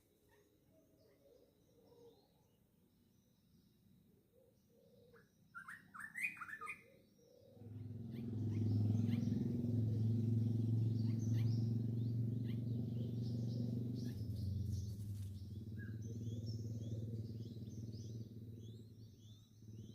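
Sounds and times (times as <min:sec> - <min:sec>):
small birds chirping: 0:00.0 - 0:19.9
low steady hum: 0:08.7 - 0:19.9.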